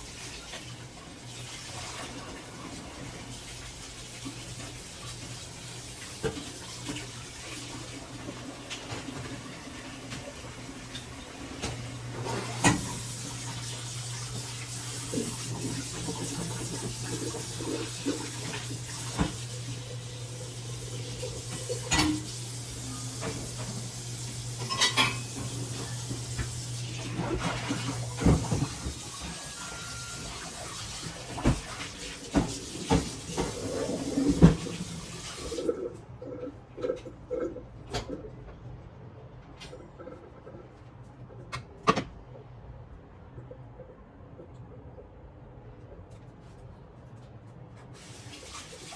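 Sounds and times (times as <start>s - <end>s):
tap running into sink: 18.0s - 19.5s, 31.3s - 35.5s
dishes clinking: 24.6s - 25.6s.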